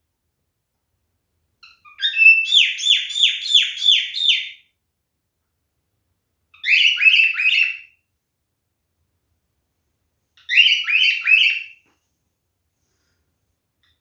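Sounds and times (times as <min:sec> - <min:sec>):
cockatiel calling: 0:01.6 - 0:04.7, 0:06.5 - 0:08.0, 0:10.4 - 0:11.8.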